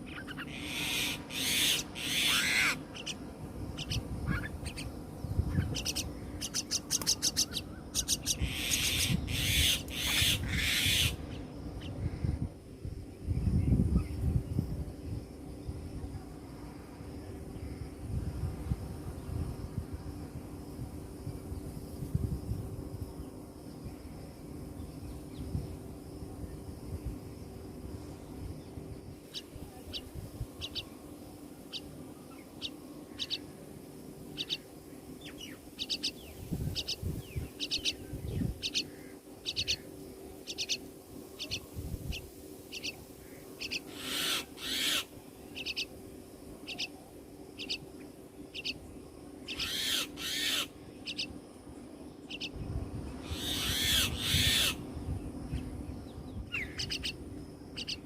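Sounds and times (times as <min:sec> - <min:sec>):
nestlings harsh begging calls: 0:00.0 - 0:03.2, 0:03.8 - 0:11.9, 0:29.3 - 0:30.9, 0:31.7 - 0:33.5, 0:34.4 - 0:40.8, 0:41.4 - 0:45.9, 0:46.6 - 0:47.0, 0:49.5 - 0:51.3, 0:53.2 - 0:54.8, 0:56.5 - 0:57.2, 0:57.8 - 0:58.0.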